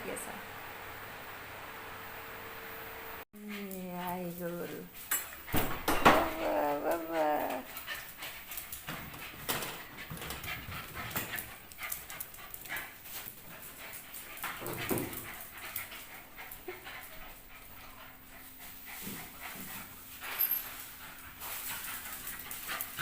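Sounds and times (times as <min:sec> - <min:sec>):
puppy panting and whimpering: 0:03.4 - 0:23.0
puppy high-pitched whine: 0:05.5 - 0:07.7.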